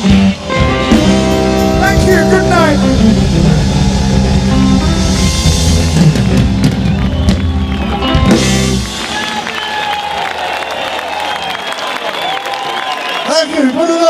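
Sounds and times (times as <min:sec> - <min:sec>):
rock band final chord: 0:00.0 - 0:09.3
drum fills: 0:00.0 - 0:10.2.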